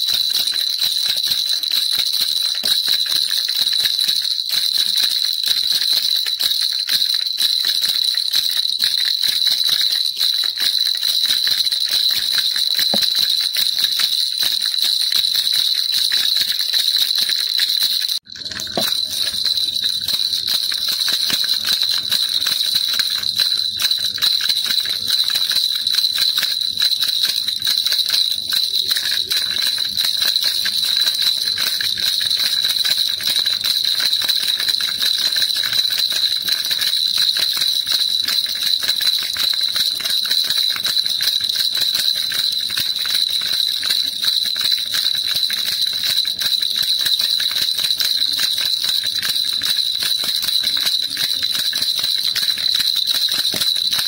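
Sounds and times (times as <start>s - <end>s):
baby rattle shaking: 0.0s - 54.0s.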